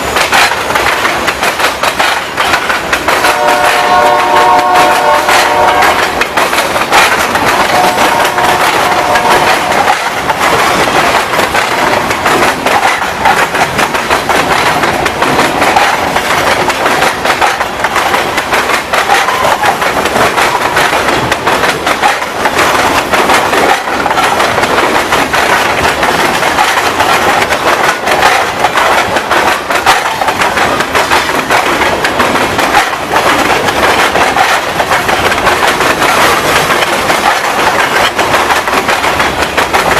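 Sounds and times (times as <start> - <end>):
train wheels clacking over rail joints: 0.0 - 39.9
locomotive horn: 3.2 - 6.2, 7.5 - 9.9.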